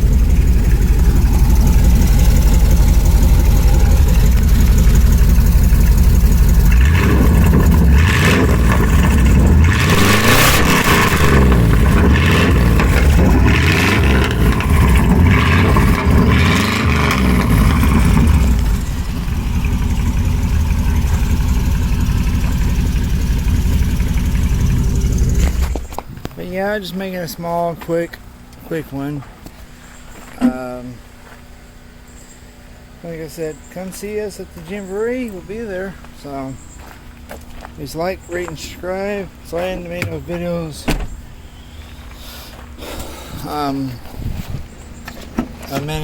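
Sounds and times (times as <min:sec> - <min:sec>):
pickup engine idling and revving: 0:00.0 - 0:30.3.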